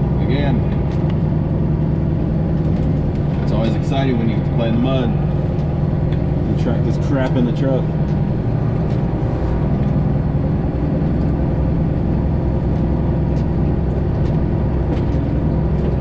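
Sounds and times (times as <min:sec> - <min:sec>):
truck diesel engine droning: 0:00.0 - 0:16.0.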